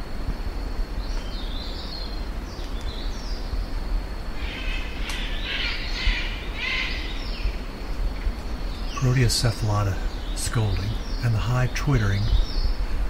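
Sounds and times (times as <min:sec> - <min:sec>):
steady low rumble: 0:00.0 - 0:13.0
bird giving harsh scolding calls: 0:04.4 - 0:07.2
high twittering bird notes: 0:04.4 - 0:07.7, 0:08.4 - 0:12.8.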